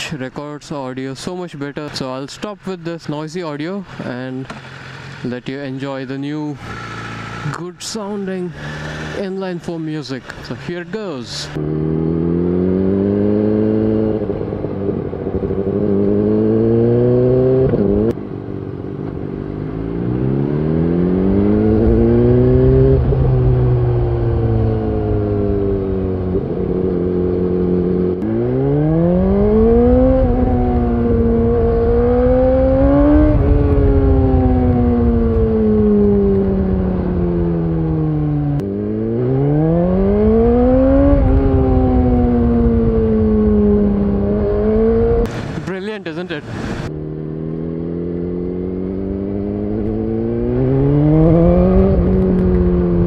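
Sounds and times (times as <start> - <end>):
motorcycle exhaust revving: 11.5 - 45.6, 46.7 - 53.0.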